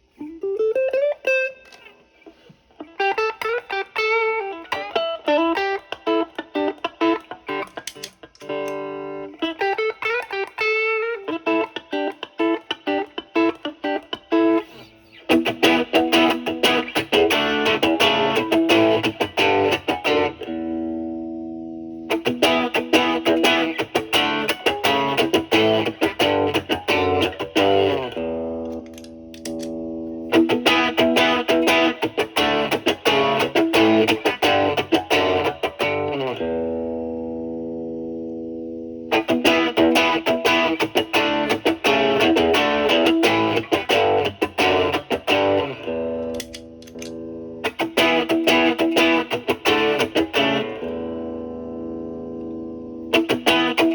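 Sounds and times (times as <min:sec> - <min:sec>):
guitar chord ringing: 0:02.8 - 0:53.9
overdriven electric guitar runs: 0:15.3 - 0:20.7, 0:22.1 - 0:29.0, 0:30.3 - 0:37.6, 0:39.1 - 0:46.2, 0:47.6 - 0:53.9.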